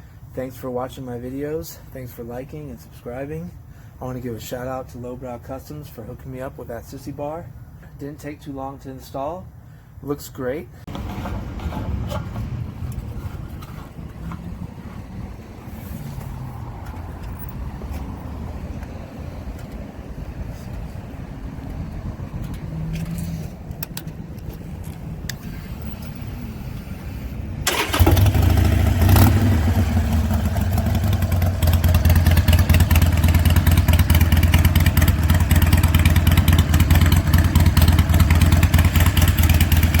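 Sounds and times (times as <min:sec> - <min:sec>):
motorcycle engine starting and idling: 0:22.3 - 0:40.0.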